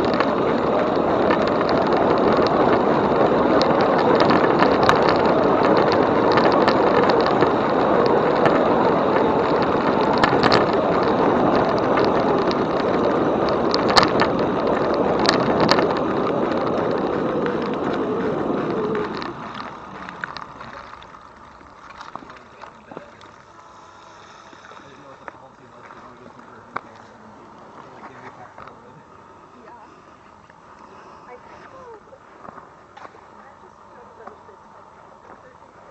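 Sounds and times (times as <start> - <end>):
bike clicks and rattles: 0.0 - 23.7
wind on microphone: 0.0 - 25.3
bicycle tyres on path: 0.0 - 35.9.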